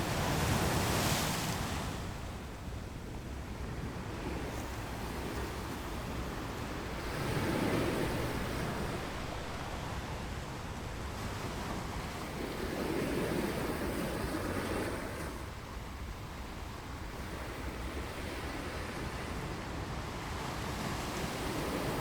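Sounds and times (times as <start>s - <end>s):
ocean waves breaking on beach: 0.0s - 22.0s
wind on microphone: 0.0s - 22.0s.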